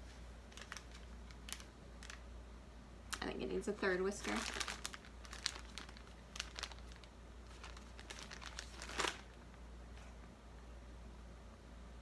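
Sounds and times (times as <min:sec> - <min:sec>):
paper bag rustling: 0:00.0 - 0:02.2, 0:04.0 - 0:09.4.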